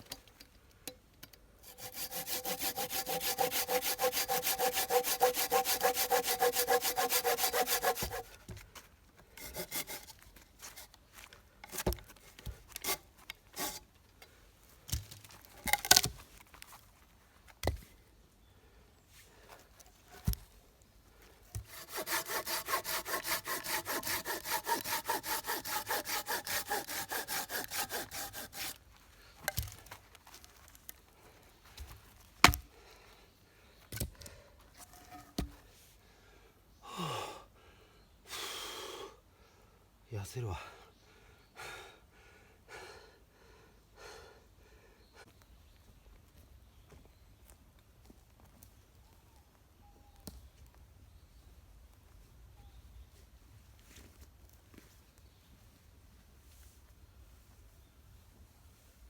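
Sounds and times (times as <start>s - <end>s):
hand saw cutting wood: 1.6s - 8.4s, 9.4s - 10.8s, 12.7s - 13.8s, 21.6s - 28.8s.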